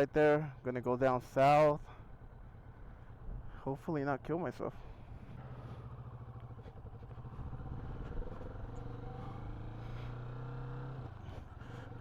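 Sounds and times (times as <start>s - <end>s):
motorcycle engine running: 4.8s - 12.0s.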